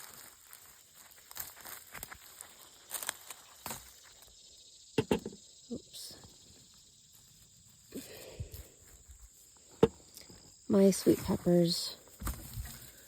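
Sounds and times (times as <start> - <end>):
rustling of plants: 0.0 - 4.4, 5.7 - 13.0
insects trilling: 0.0 - 13.0
sharp knocks: 5.0 - 5.4.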